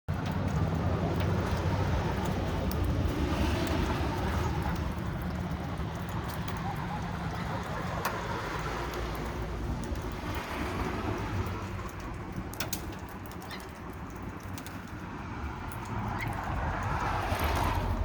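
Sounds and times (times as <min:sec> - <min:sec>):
light patter: 0:00.1 - 0:18.0
low rumble: 0:17.1 - 0:18.0.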